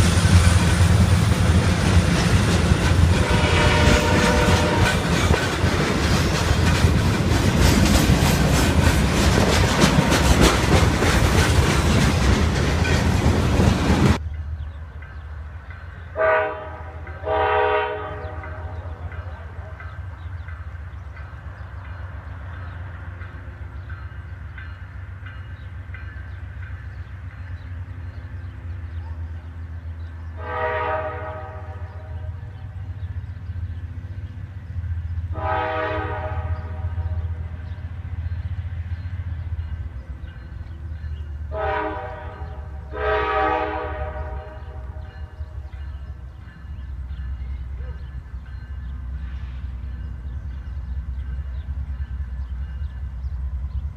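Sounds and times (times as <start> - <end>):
locomotive air horn blasts: 3.1 - 5.1, 16.2 - 19.0, 30.4 - 32.5, 35.3 - 37.4, 41.5 - 45.0.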